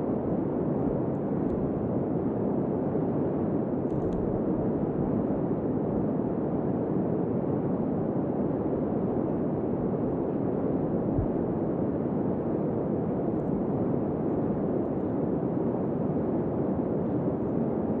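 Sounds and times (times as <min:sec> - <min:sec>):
strong blizzard wind blowing: 0:00.0 - 0:18.0
wind pressing on microphone: 0:09.6 - 0:11.6.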